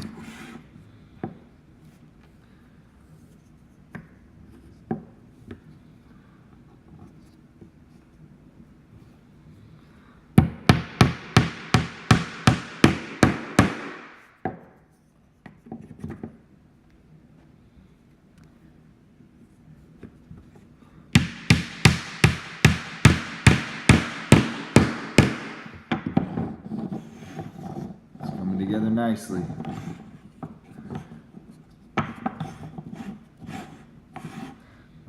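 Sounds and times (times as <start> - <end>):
hammer driving nails into wood: 10.4 - 14.3, 21.2 - 26.5.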